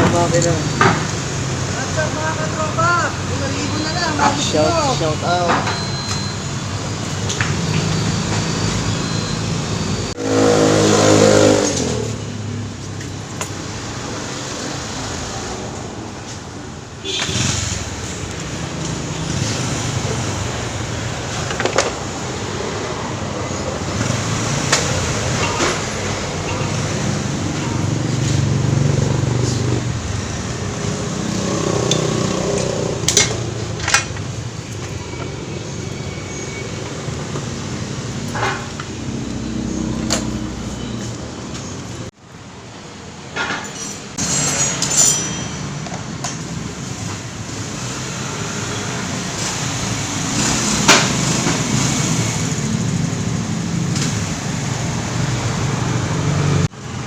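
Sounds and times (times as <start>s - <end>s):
road traffic passing: 0.0s - 57.0s
vehicle engine revving: 7.4s - 12.6s, 17.2s - 34.4s, 46.8s - 56.8s.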